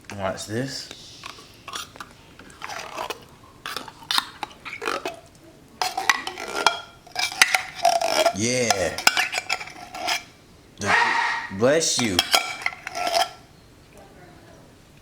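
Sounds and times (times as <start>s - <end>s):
metal spoon scraping a can: 1.2s - 5.2s, 5.8s - 13.4s.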